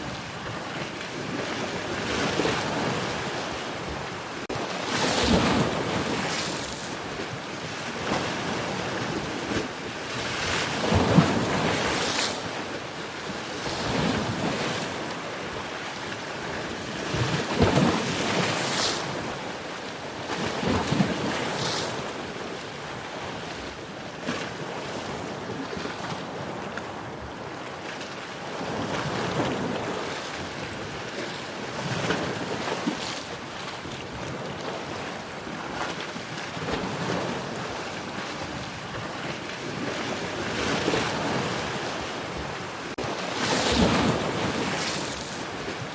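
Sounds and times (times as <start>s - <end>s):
wind: 0.0s - 45.9s
ocean waves breaking: 35.9s - 45.9s.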